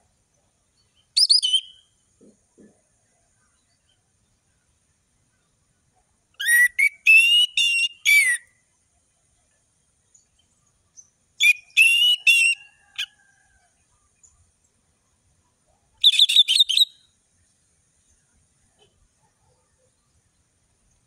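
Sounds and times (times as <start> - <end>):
thrush singing whistled notes: 0.9 - 1.9, 6.4 - 8.5, 11.0 - 13.1, 16.0 - 17.1.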